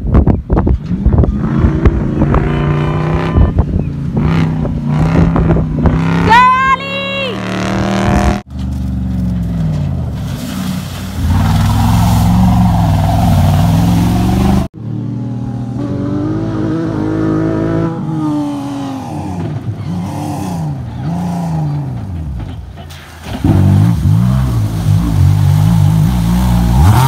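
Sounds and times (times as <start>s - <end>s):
rally car engines revving: 0.8s - 6.6s, 7.2s - 27.0s.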